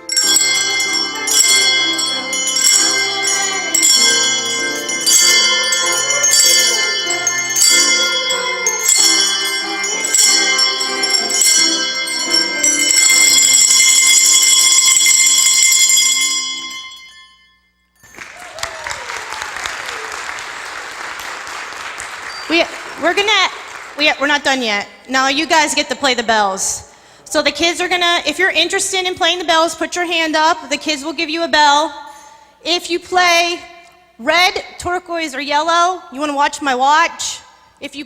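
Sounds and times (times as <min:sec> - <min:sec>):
handbells playing a tune: 0:00.0 - 0:18.7, 0:22.0 - 0:26.0
audience applause: 0:18.0 - 0:24.2.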